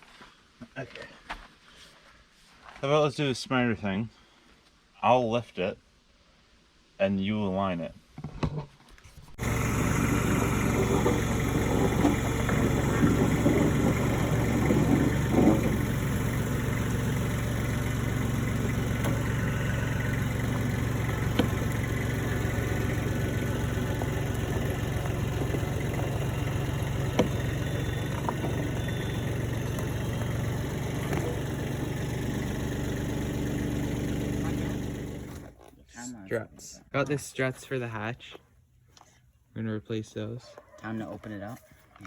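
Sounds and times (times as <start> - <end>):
car engine idling: 9.4 - 35.6.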